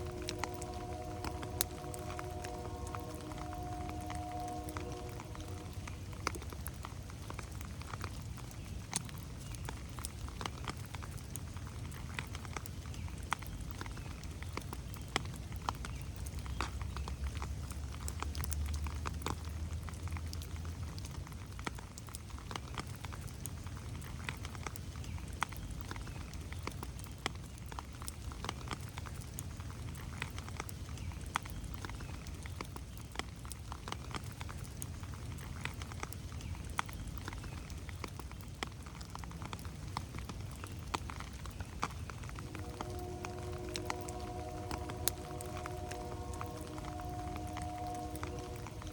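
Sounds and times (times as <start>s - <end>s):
low rumble: 0.0s - 7.1s, 42.2s - 48.9s
raindrops ticking: 0.0s - 48.9s.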